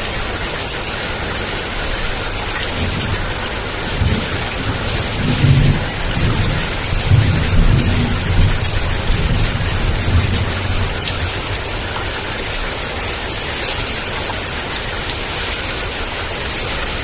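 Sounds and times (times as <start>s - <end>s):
heavy rain pouring: 0.0s - 17.0s
low thunder rumble: 2.6s - 11.9s.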